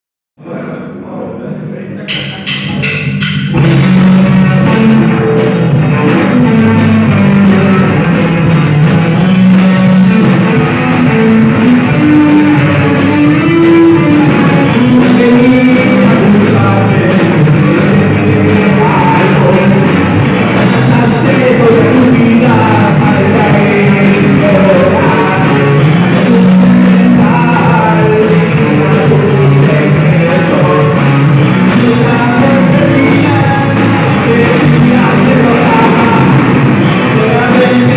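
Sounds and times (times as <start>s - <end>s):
rock band playing: 2.1s - 37.9s
person singing: 9.6s - 37.9s.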